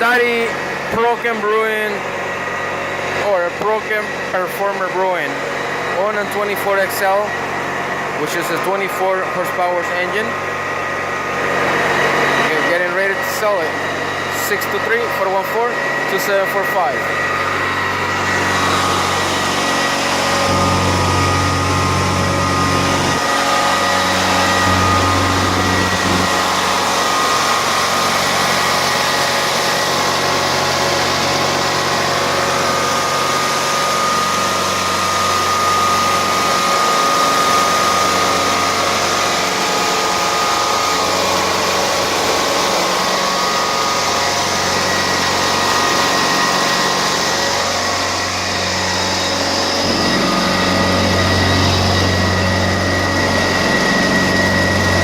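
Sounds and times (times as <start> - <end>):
carpet cleaning machine engine: 0.0 - 55.0
steady machine whine: 0.0 - 55.0.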